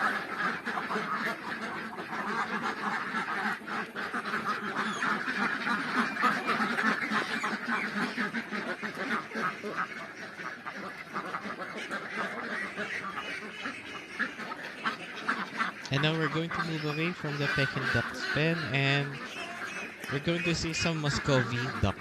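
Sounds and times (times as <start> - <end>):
ducks quacking: 0.0 - 22.0.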